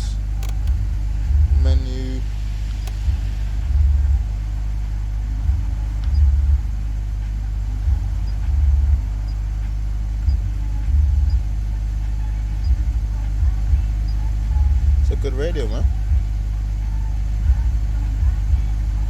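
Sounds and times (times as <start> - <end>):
faint ticks: 0.0 - 1.5, 2.3 - 15.2
car stereo playing music: 0.0 - 19.0
deep bass line pulsing: 0.0 - 19.0
steady low hum: 0.0 - 19.0.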